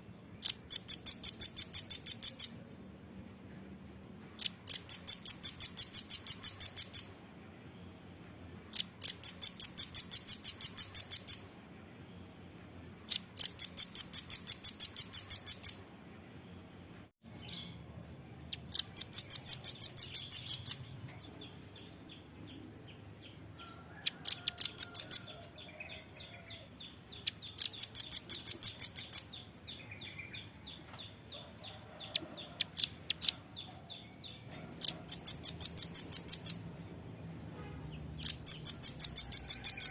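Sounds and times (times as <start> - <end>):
soft bird twittering: 17.3 - 39.9.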